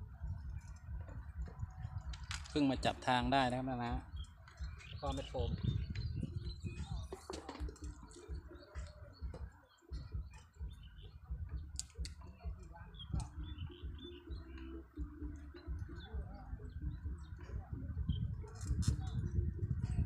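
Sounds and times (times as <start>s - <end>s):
low rumble on microphone: 0.0s - 20.0s
small birds chirping: 0.0s - 20.0s
sharp clicks: 11.7s - 12.4s.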